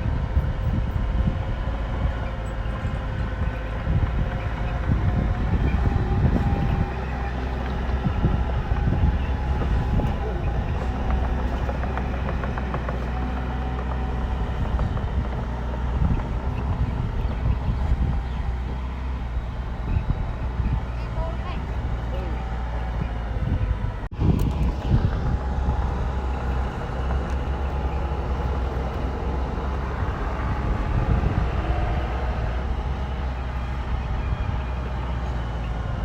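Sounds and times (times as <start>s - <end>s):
bulldozer diesel engine running: 0.0s - 36.0s
metallic clanks and knocks: 3.4s - 18.9s.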